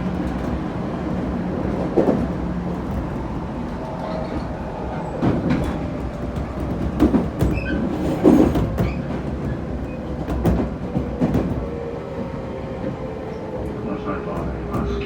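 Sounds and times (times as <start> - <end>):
train rumble: 0.0 - 15.0
wheel clacks over rail joints: 5.1 - 11.7.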